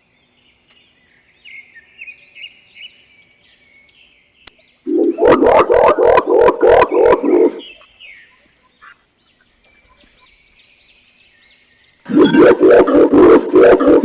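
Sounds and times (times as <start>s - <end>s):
high repeated bird chirp: 4.8s - 8.4s.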